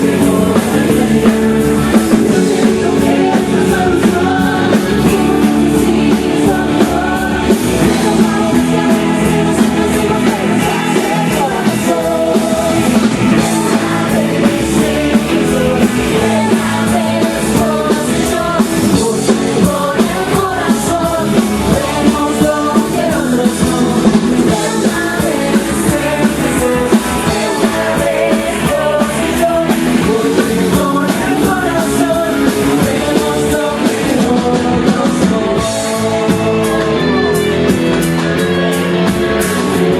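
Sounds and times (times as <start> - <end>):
person singing: 0.0 - 37.7
drums: 0.0 - 39.9
rock band playing live: 0.0 - 39.9.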